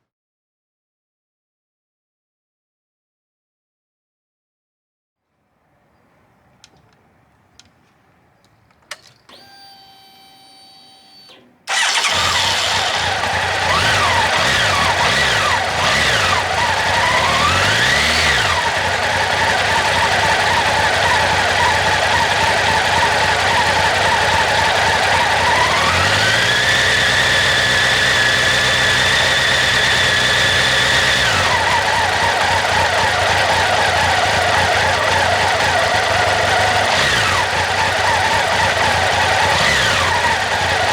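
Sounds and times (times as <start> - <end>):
starter clicks: 6.6 - 18.2
motorcycle engine revving: 11.0 - 40.9.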